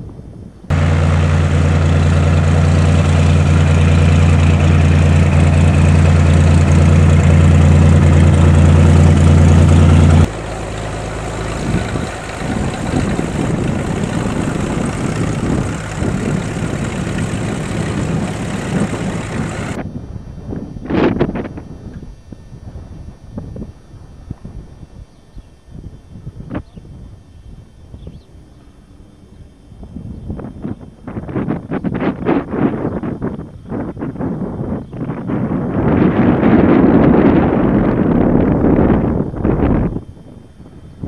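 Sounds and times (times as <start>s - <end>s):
propeller airplane engine idling: 0.7s - 22.0s.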